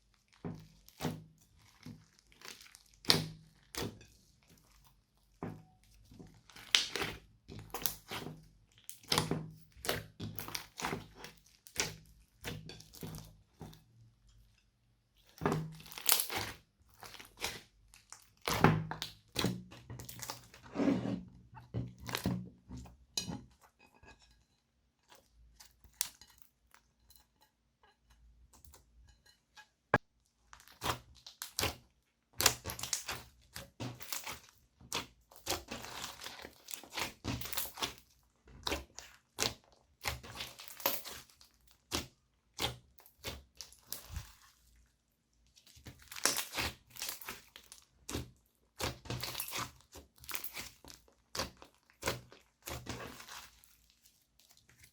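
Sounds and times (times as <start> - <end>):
slime squishing and crackling: 0.1 - 5.1, 5.9 - 13.8, 15.2 - 20.6, 30.4 - 54.9.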